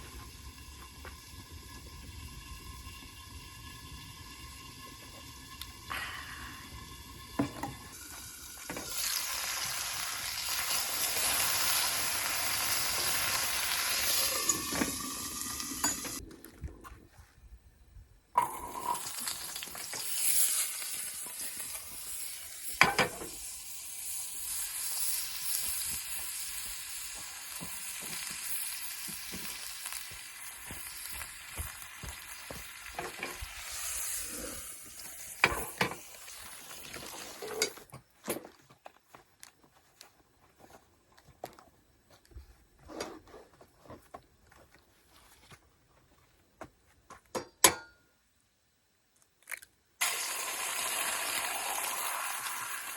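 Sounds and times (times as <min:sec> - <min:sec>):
food sizzling in frying pan: 0:00.0 - 0:16.2, 0:18.4 - 0:37.8, 0:50.0 - 0:52.9.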